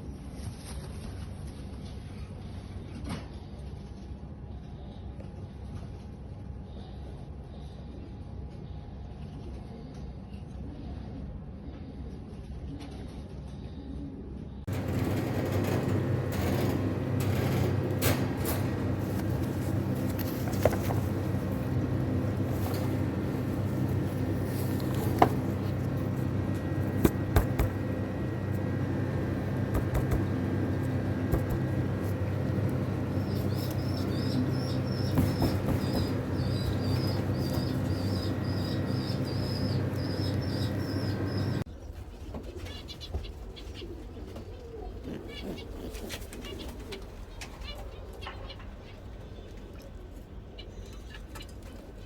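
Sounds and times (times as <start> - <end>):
pigeons cooing: 13.8 - 41.6, 42.4 - 48.9
small bird chirping: 14.7 - 41.7.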